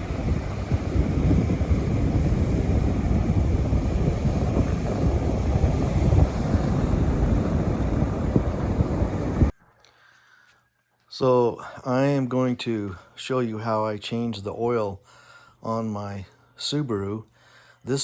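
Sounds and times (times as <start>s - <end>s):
loud low rumbling: 0.0s - 9.5s.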